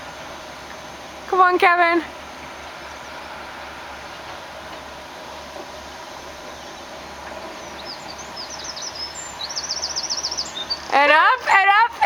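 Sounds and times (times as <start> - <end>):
low outdoor rumble: 0.0 - 12.0
small bird chirping: 7.5 - 11.0.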